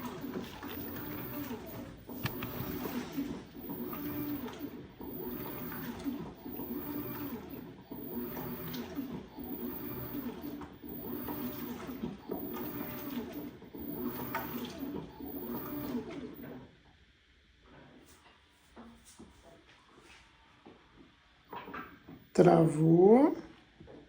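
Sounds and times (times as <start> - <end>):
washing machine water churning: 0.0 - 16.8.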